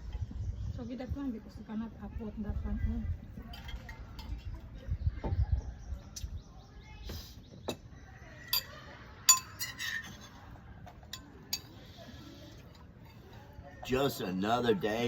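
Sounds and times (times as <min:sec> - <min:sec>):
tableware clinking and knocking: 0:08.5 - 0:11.8.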